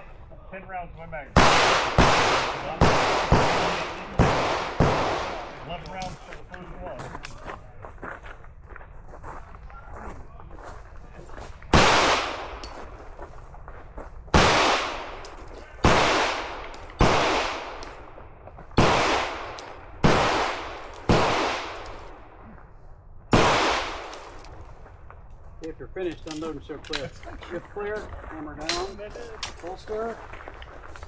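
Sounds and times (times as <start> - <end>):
reverberant gunshots: 1.4 - 6.2, 11.7 - 12.9, 14.3 - 22.6, 23.3 - 24.5.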